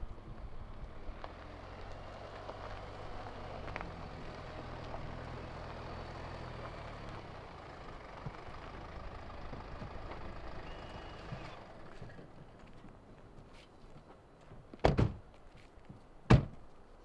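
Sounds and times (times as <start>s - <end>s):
car engine humming: 0.0s - 12.8s.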